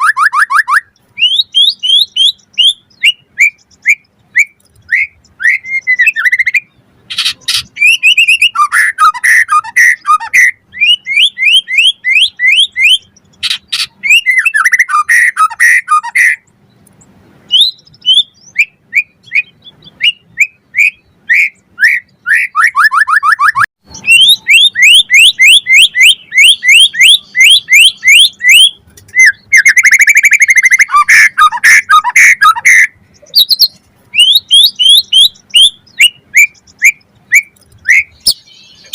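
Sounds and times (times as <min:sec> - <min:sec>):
bird singing whistled notes: 0:00.0 - 0:16.8, 0:17.5 - 0:38.9
buzzy bird trills: 0:17.5 - 0:38.9.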